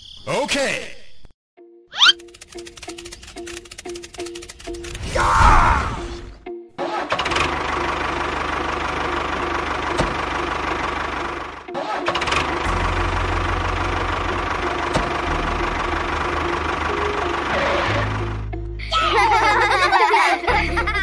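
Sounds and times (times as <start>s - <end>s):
small engine running: 2.1s - 5.1s, 7.1s - 18.5s.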